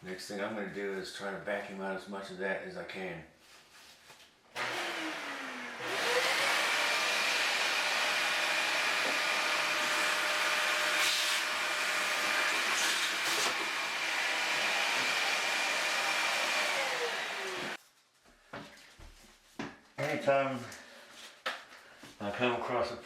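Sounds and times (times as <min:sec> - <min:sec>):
vacuum cleaner whining: 0:04.6 - 0:17.8.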